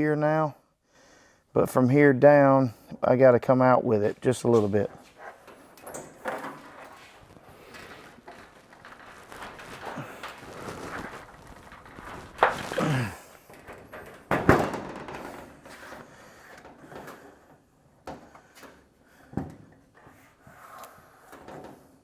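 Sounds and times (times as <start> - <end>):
sheet metal knocks and clunks: 13.5 - 17.2.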